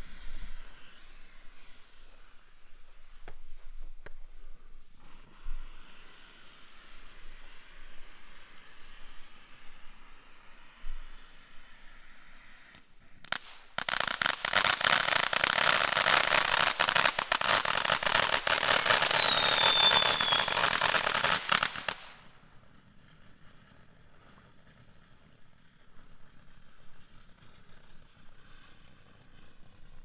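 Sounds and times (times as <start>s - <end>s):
firework fountain crackling: 13.2s - 30.0s
falling whistle: 18.7s - 20.7s.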